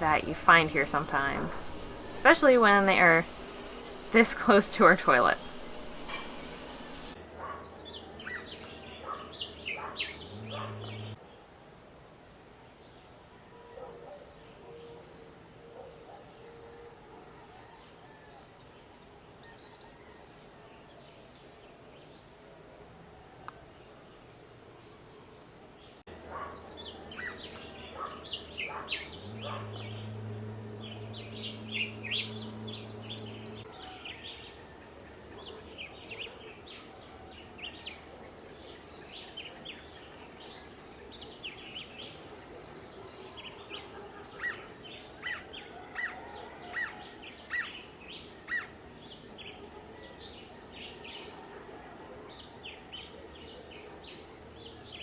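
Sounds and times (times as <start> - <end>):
high thin whine: 0.0 - 7.2, 29.2 - 33.7
low hum: 0.0 - 7.2, 28.4 - 33.7
birds chirping: 0.0 - 11.4, 25.6 - 51.4, 52.4 - 55.0.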